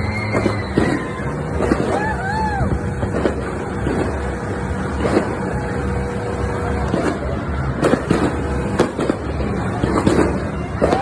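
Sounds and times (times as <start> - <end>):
distant fireworks rumble: 0.0 - 11.0
sharp firecracker cracks: 0.3 - 2.3, 6.8 - 11.0.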